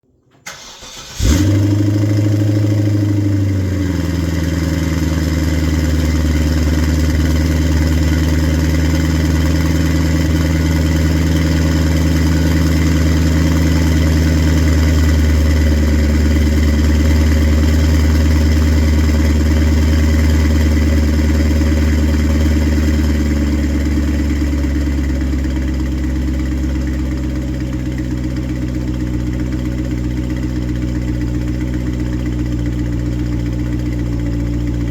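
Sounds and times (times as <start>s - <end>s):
engine cranking: 0.4s - 1.7s
car engine revving and idling: 0.9s - 34.9s.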